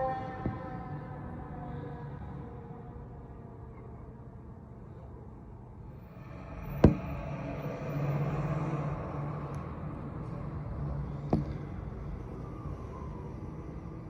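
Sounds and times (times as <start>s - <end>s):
diesel engine humming: 4.3s - 14.0s.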